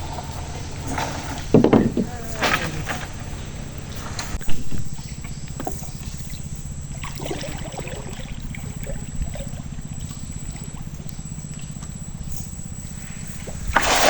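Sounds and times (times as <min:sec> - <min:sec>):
light clatters: 0:00.0 - 0:06.7
small boat engine running: 0:00.0 - 0:14.0.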